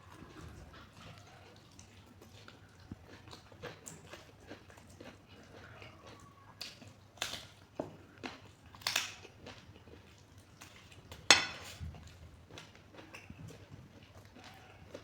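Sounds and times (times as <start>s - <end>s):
wet chewing: 0.1s - 15.0s.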